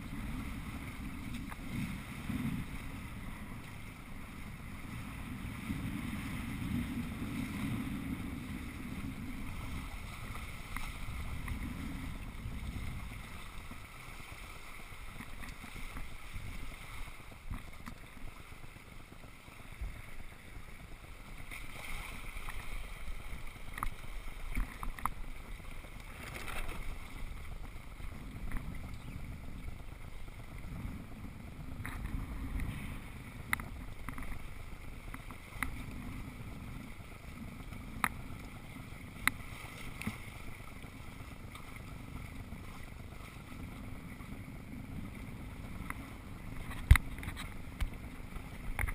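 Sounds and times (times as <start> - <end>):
wind buffeting microphone: 0.0 - 21.5, 22.3 - 39.4
water rushing past boat: 0.0 - 48.9.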